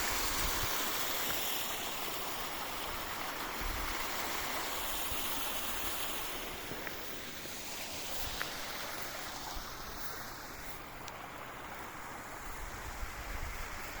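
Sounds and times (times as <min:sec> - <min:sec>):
water flowing from fountain spout: 0:00.0 - 0:14.0.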